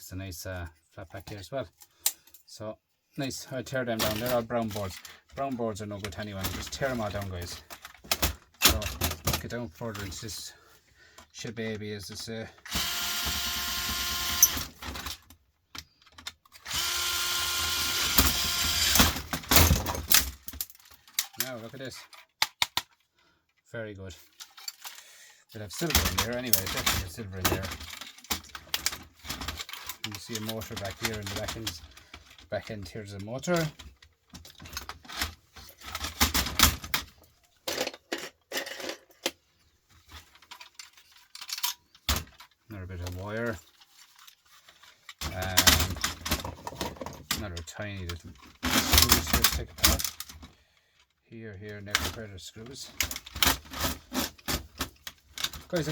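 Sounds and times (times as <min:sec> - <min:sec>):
small parts clicking and clattering: 0:04.0 - 0:10.4, 0:11.2 - 0:55.9
power drill motor whine: 0:12.7 - 0:14.6, 0:16.6 - 0:19.0.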